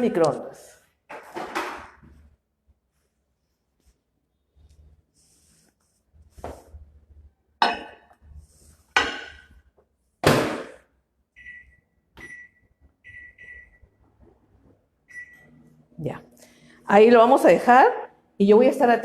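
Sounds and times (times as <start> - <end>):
short keypad beeps: 11.4 - 13.8.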